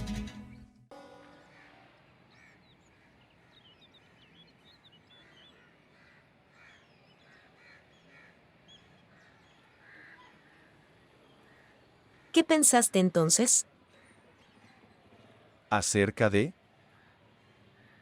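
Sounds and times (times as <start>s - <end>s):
small birds chirping: 2.2s - 11.9s.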